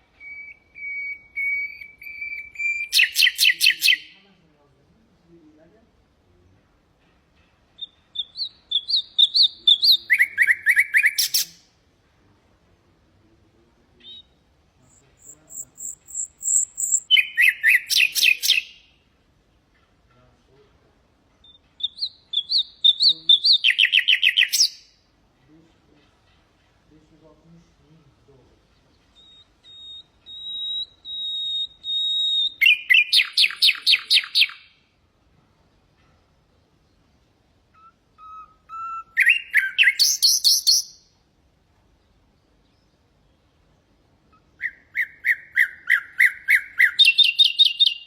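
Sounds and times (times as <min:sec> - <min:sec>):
nightingale singing: 0:00.0 - 0:04.2, 0:07.7 - 0:11.8, 0:13.8 - 0:19.1, 0:21.4 - 0:25.2, 0:26.0 - 0:34.9, 0:36.5 - 0:41.2, 0:41.9 - 0:48.0.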